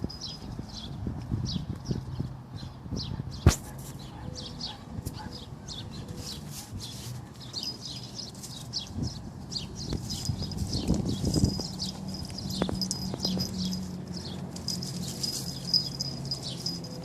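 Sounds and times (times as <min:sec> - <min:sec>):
bird chirping: 0:00.1 - 0:17.0.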